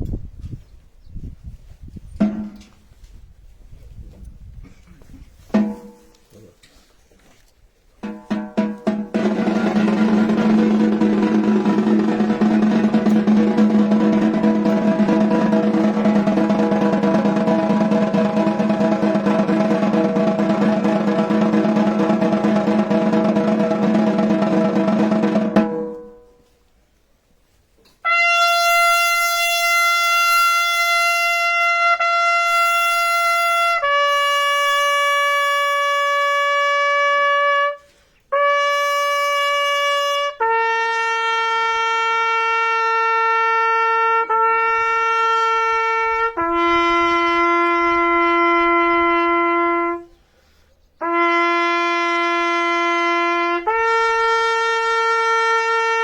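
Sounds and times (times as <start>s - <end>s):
drum roll: 2.2s - 2.7s, 5.5s - 6.0s, 8.0s - 26.4s
trumpet call long notes: 8.9s - 26.5s, 28.0s - 50.2s, 51.0s - 56.0s.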